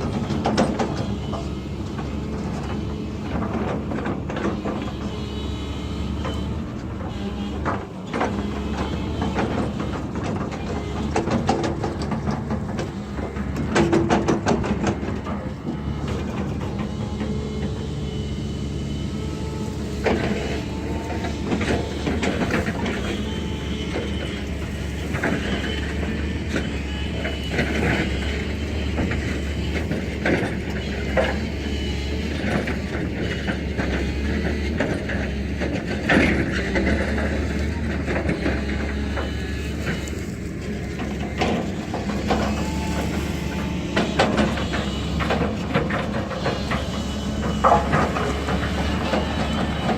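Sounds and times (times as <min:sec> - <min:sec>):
heavy diesel machine running: 0:00.0 - 0:49.9.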